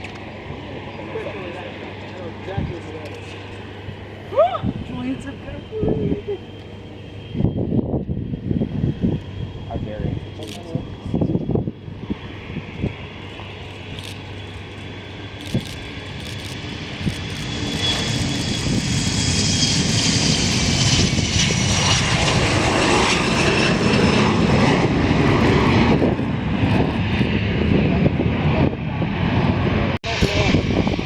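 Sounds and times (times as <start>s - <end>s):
high engine whine: 0.0s - 31.0s
jet engines passing: 0.0s - 31.0s.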